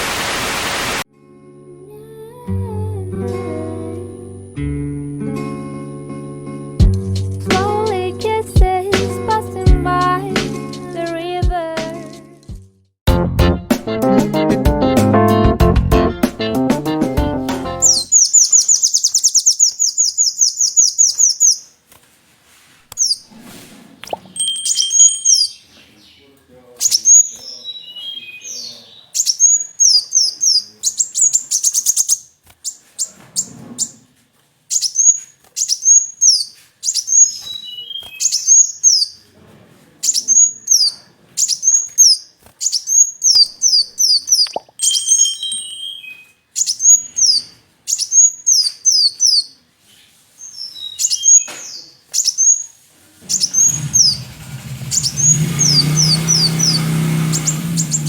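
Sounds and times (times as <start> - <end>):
sunbird singing: 17.8 - 21.7, 24.1 - 32.3, 34.7 - 39.2, 40.1 - 49.5, 50.5 - 58.0.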